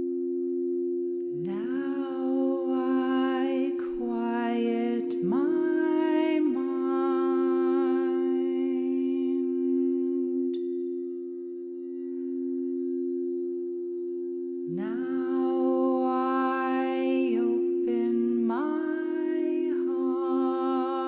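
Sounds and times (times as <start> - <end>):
singing bowl ringing: 0.0 - 21.0
person humming: 1.3 - 11.2, 14.6 - 21.0.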